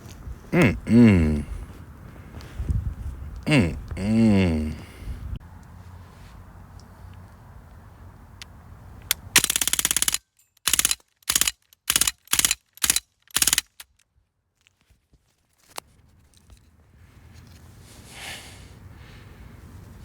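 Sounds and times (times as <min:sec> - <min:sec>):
bb gun firing bursts: 0:09.1 - 0:13.8.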